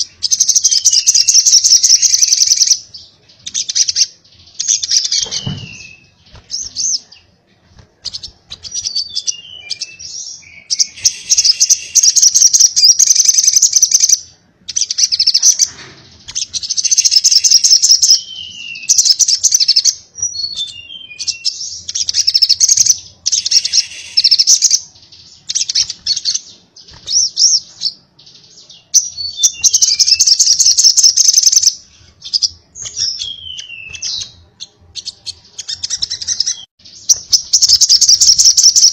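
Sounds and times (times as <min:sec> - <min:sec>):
sunbird twittering: 0:08.0 - 0:15.7, 0:16.3 - 0:28.0, 0:28.8 - 0:38.9.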